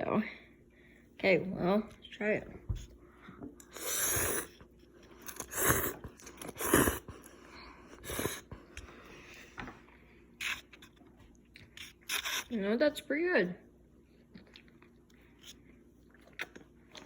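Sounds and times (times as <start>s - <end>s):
loud noodle slurps: 3.7s - 8.6s, 10.4s - 11.0s, 11.7s - 12.5s.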